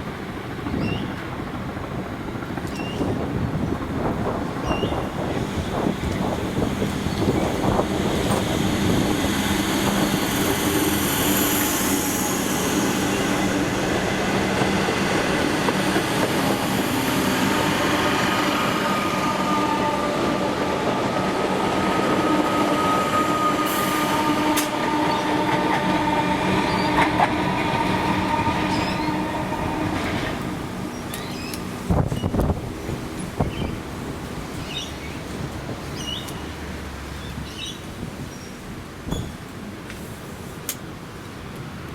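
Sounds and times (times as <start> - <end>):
train running noise: 0.0 - 41.9
train wheels squealing on rails: 0.6 - 1.3, 2.6 - 3.2, 4.6 - 32.4, 34.5 - 36.5, 37.2 - 39.4.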